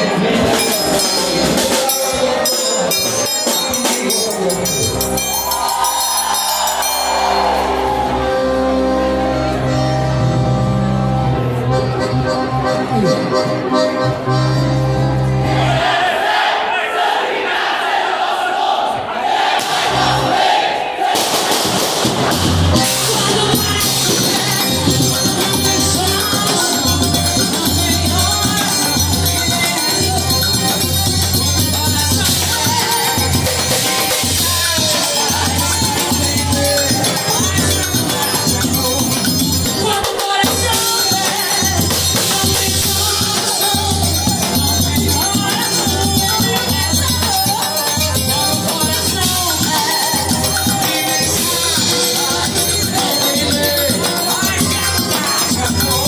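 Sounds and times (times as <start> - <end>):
accordion melody: 0.0 - 6.0, 6.6 - 16.6, 19.6 - 56.0
jingling shaker percussion: 0.0 - 8.1, 22.8 - 56.0
low bass notes: 7.2 - 15.7.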